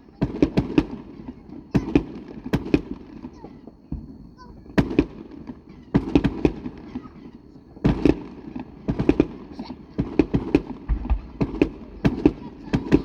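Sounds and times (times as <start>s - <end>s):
fireworks bursting: 7.8s - 13.0s.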